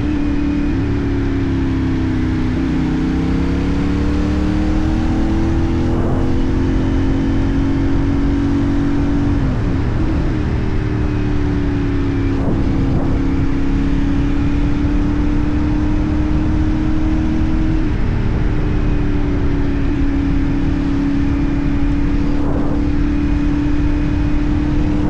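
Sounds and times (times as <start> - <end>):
motorcycle engine cruising: 0.0 - 25.0
wind and road noise: 0.0 - 25.0.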